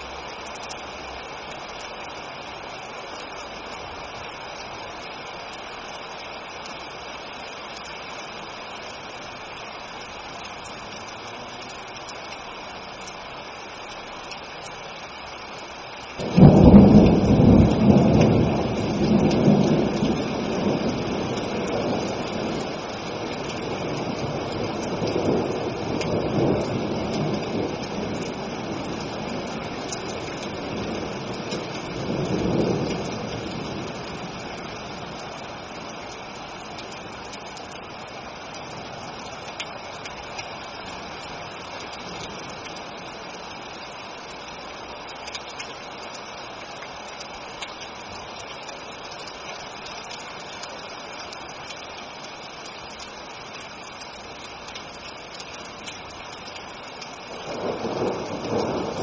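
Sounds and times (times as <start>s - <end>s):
steady rain: 0.0s - 59.0s
rolling thunder: 16.2s - 35.6s, 57.4s - 59.0s.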